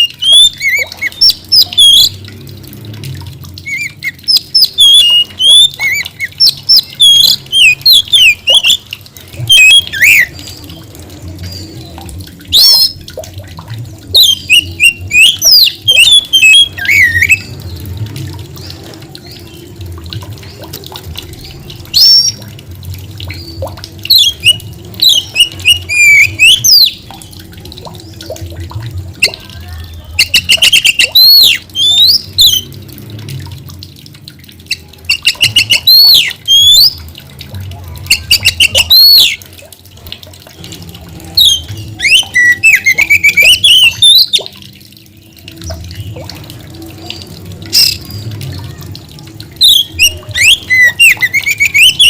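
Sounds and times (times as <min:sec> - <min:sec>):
bird singing whistled phrases: 0:00.0 - 0:02.1, 0:03.7 - 0:08.8, 0:09.5 - 0:10.3, 0:14.2 - 0:17.5, 0:24.1 - 0:27.0, 0:30.2 - 0:32.7, 0:34.7 - 0:37.0, 0:38.1 - 0:39.4, 0:41.4 - 0:44.4, 0:49.6 - 0:52.0.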